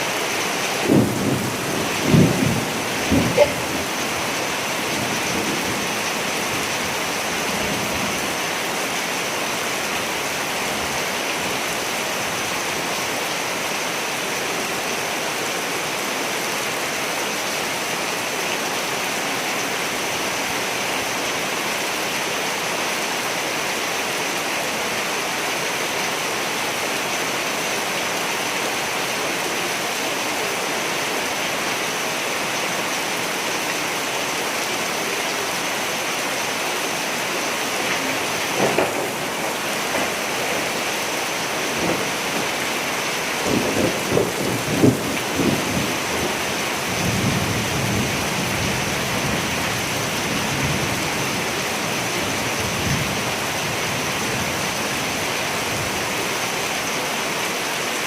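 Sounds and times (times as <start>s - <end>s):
heavy rain falling: 0.0s - 58.0s
low thunder rumble: 0.8s - 4.0s.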